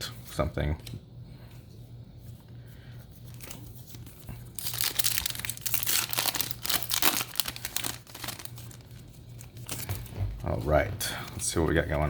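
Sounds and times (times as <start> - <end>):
foil wrapper tearing and crinkling: 3.3 - 9.9.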